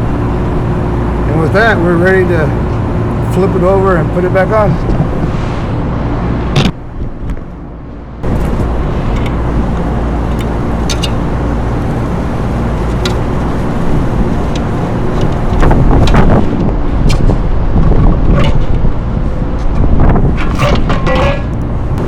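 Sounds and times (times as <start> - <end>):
low machinery hum: 0.0 - 22.0
metal parts clicking: 10.3 - 11.2, 12.8 - 13.4.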